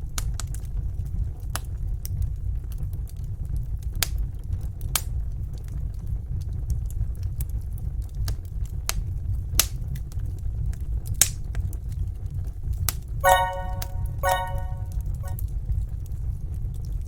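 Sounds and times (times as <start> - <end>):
pitched musical tone: 13.2 - 15.4.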